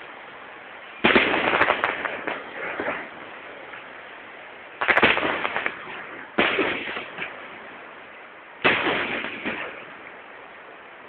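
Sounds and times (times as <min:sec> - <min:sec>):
fireworks crackling pops: 0:00.9 - 0:04.0, 0:04.7 - 0:10.5
fireworks bangs: 0:01.0 - 0:03.8, 0:04.8 - 0:07.8, 0:08.6 - 0:10.2.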